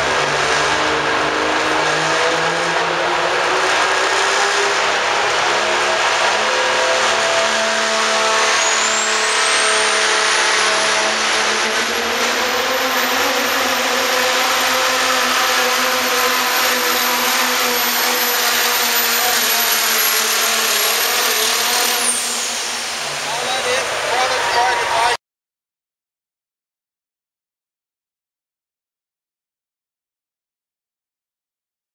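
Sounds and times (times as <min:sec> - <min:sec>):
diesel engine droning under load: 0:00.0 - 0:25.2
high turbo whine: 0:00.0 - 0:25.2.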